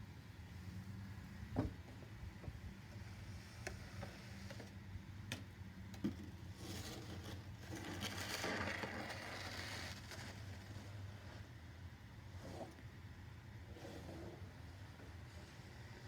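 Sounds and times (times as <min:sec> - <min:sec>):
snow shovel scraping pavement: 0:06.6 - 0:11.4.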